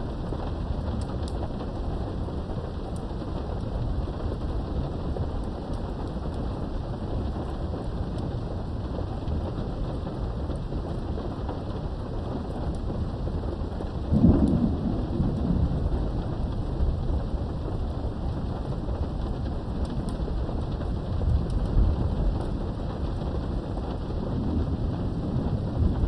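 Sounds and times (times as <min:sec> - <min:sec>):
steady rain behind a window: 0:00.0 - 0:26.0
thunder crack rolling: 0:13.8 - 0:26.0.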